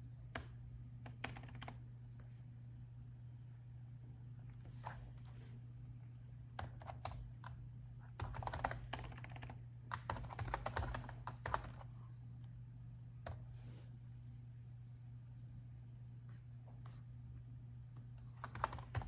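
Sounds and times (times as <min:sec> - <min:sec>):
low steady hum: 0:00.0 - 0:19.0
typing on laptop keyboard: 0:00.4 - 0:01.8, 0:06.6 - 0:07.6, 0:08.2 - 0:11.9, 0:18.4 - 0:19.0.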